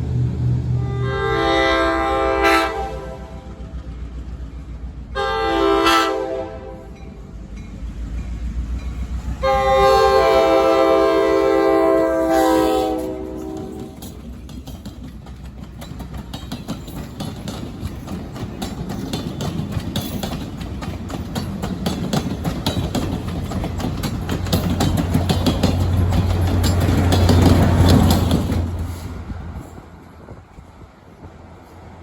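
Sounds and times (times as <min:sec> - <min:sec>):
train rumble: 0:00.0 - 0:32.0
train horn chord: 0:00.7 - 0:03.7, 0:05.2 - 0:07.0, 0:09.4 - 0:14.2
train wheels clicking over rail joints: 0:06.2 - 0:32.0.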